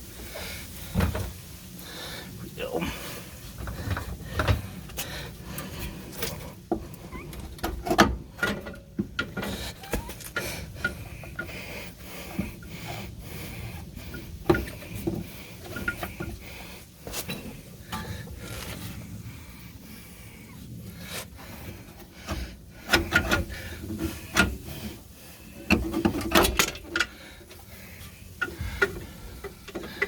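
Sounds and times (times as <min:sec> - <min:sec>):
knocks clicks and scrapes of tools: 0:03.6 - 0:11.6, 0:22.2 - 0:25.0, 0:25.6 - 0:27.7, 0:28.4 - 0:30.0.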